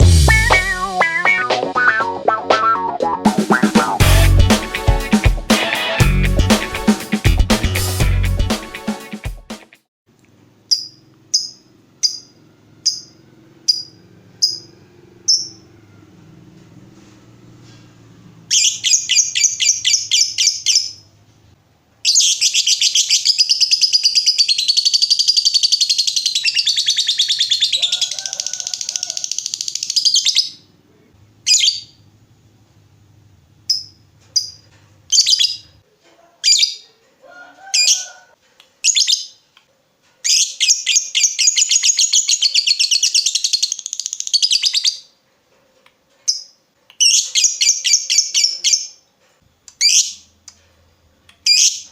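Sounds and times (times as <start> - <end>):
lovebird single chirps: 10.7 - 14.7.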